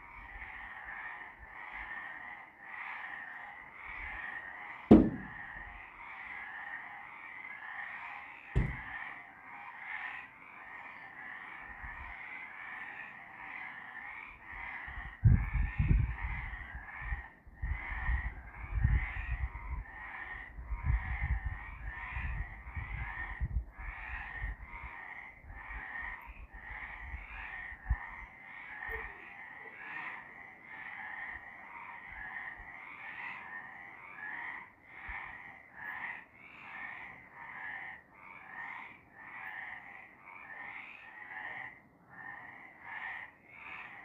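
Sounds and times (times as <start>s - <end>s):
frogs croaking: 0.0s - 44.0s
low rumbling thumps: 4.9s - 5.5s, 8.6s - 9.0s.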